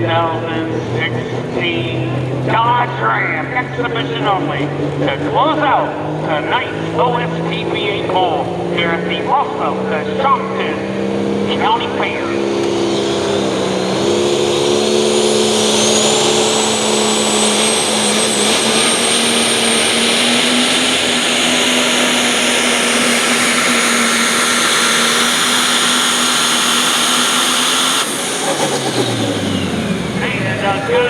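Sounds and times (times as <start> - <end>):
truck engine at full throttle: 0.0 - 31.0
high engine whistle: 11.8 - 30.2.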